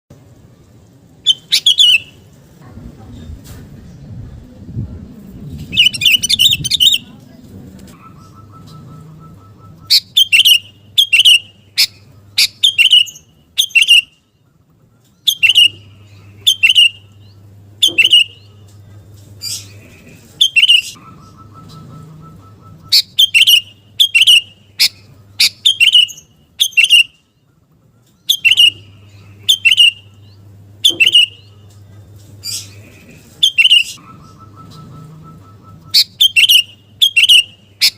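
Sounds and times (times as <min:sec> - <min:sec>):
bird singing bubbly calls: 0:20.4 - 0:27.2, 0:33.4 - 0:37.9.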